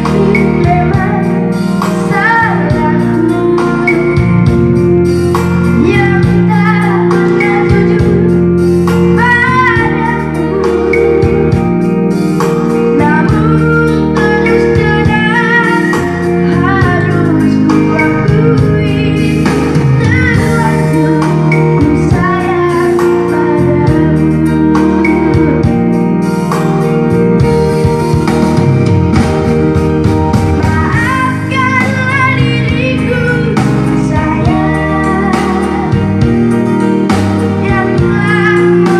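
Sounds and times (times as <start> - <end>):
child singing: 0.0 - 1.4, 2.0 - 4.3, 5.8 - 8.4, 9.0 - 11.6, 13.0 - 25.4, 30.6 - 36.0, 37.6 - 38.9
band with guitar: 0.0 - 38.9.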